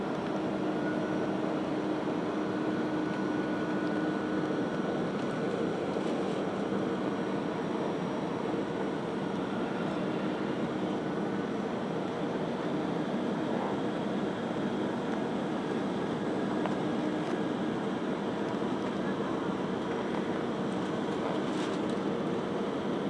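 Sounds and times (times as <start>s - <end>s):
airplane cabin engine roar: 0.0s - 23.0s.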